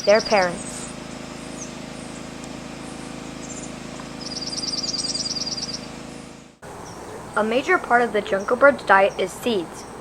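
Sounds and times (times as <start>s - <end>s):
bird trilling: 0.0s - 7.5s
bird twittering: 0.0s - 7.5s
low hum: 0.0s - 10.0s.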